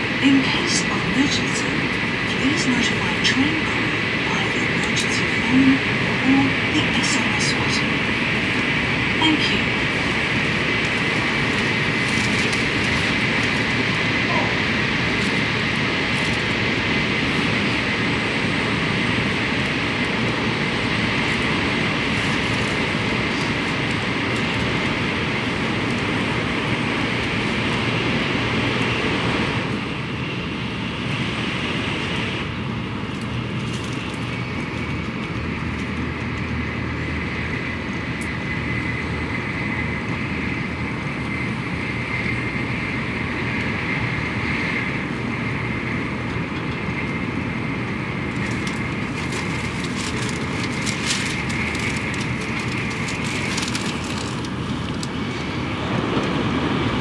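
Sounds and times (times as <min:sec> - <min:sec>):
faint high whine: 0:00.0 - 0:30.0
train cabin rumble: 0:00.0 - 0:57.0.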